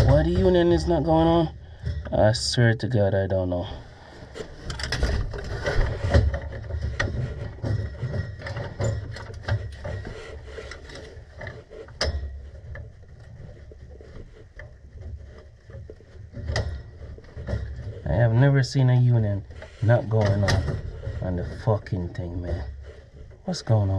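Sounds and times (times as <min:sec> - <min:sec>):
metallic clicks and scrapes of fittings: 0:04.3 - 0:18.1.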